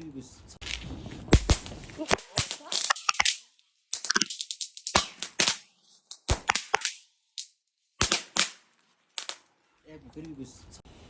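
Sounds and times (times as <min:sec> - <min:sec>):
fireworks cracking and banging: 0:00.6 - 0:07.0, 0:08.0 - 0:09.5.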